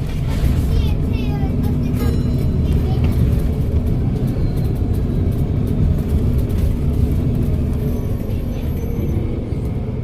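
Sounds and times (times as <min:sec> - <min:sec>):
bus diesel engine rumbling: 0:00.0 - 0:10.0.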